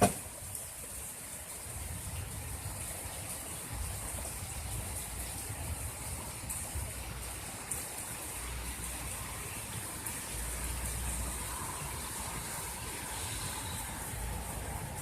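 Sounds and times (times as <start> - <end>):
heavy rain downpour: 0.0 - 15.0.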